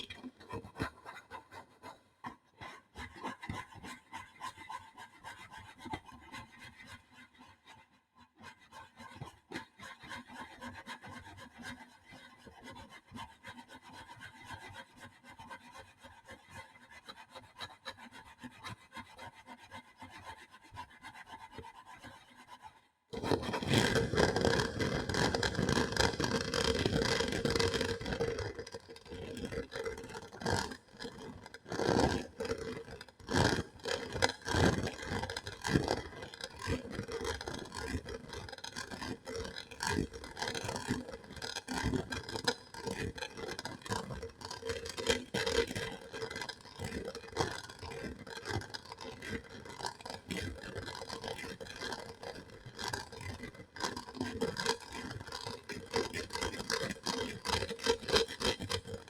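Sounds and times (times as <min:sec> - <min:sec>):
asmr scratching and scraping: 0:23.2 - 0:59.0.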